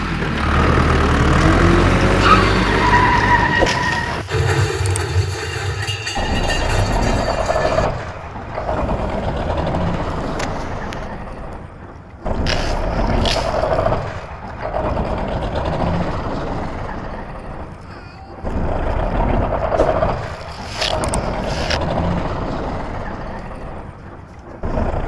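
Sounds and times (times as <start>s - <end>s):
vehicle engine rumble: 0.0s - 25.0s
sharp clicks: 19.7s - 21.9s.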